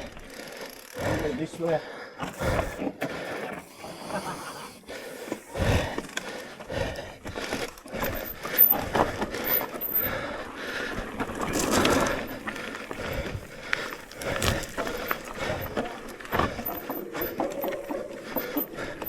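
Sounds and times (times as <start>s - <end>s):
bike knocking and rattling: 5.4s - 19.0s
tyres crunching on stones: 11.0s - 17.9s.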